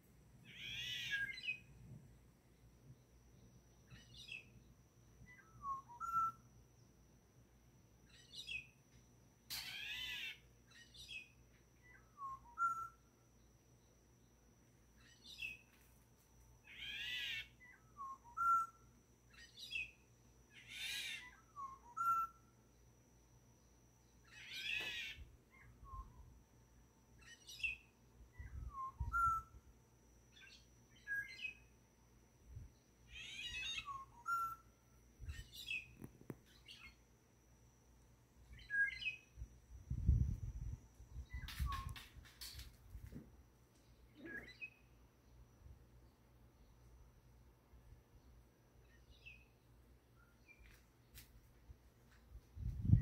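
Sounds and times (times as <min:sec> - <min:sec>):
low whistled bird notes: 0:05.3 - 0:06.4, 0:11.8 - 0:13.0, 0:28.4 - 0:29.6.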